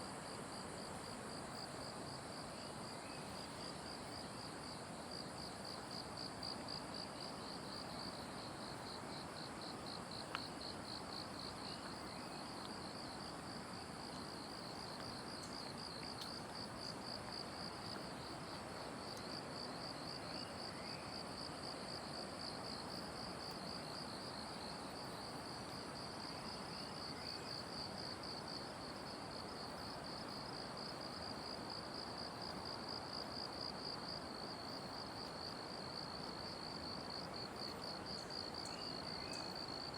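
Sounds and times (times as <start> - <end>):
background hiss: 0.0 - 39.9.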